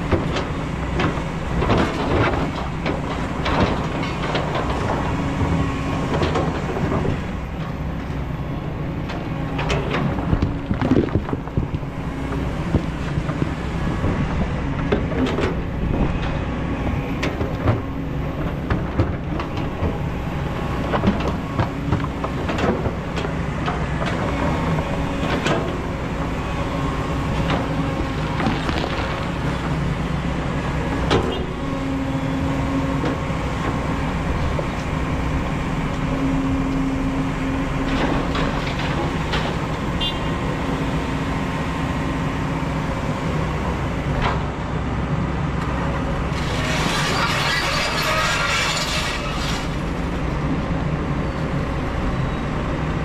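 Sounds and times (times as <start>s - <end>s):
excavator engine and hydraulics: 0.0s - 53.0s
knocks and clanks: 9.1s - 16.4s.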